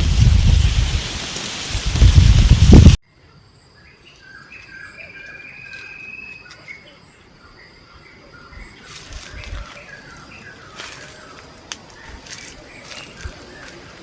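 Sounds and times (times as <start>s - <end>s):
insects trilling: 3.2s - 14.0s
birds chirping: 3.8s - 14.0s.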